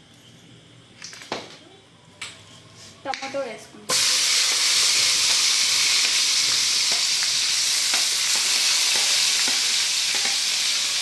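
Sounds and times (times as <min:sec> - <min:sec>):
tomatoes sizzling in hot oil: 0:03.9 - 0:11.0.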